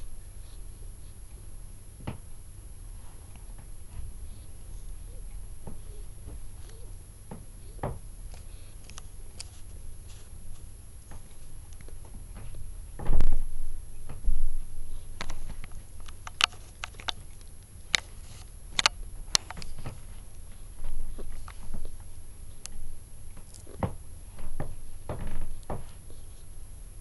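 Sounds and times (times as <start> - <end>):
kittens tapping and clicking: 15.1 - 26.2.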